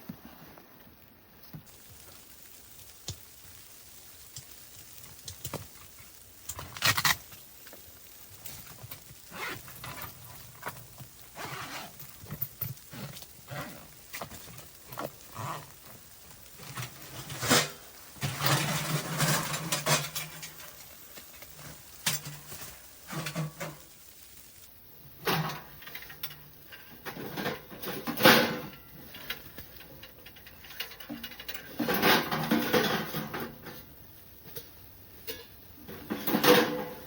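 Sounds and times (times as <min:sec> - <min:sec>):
rustling of gear: 0:08.5 - 0:16.6.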